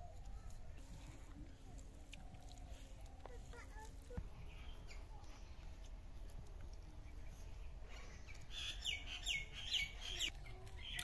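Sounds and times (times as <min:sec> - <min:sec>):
low outdoor background: 0:00.0 - 0:11.0.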